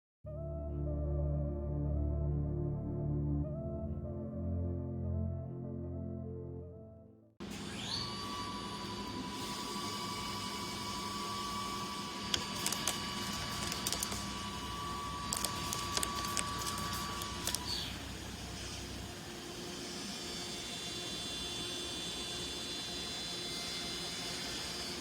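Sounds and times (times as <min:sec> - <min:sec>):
machine drilling whine: 0:07.4 - 0:25.0.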